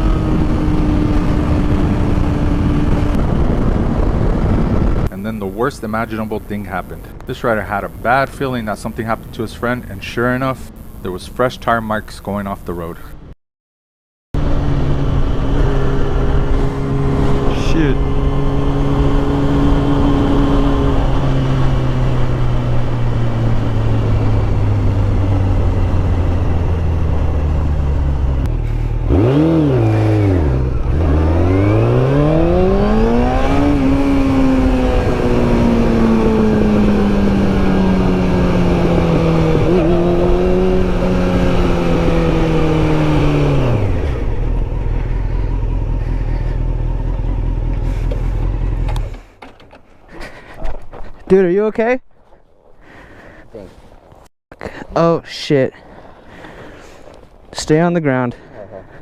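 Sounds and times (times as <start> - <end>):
motorcycle engine revving: 0.0 - 12.2, 14.4 - 51.2
steady low rumble: 0.0 - 13.2, 39.0 - 49.4.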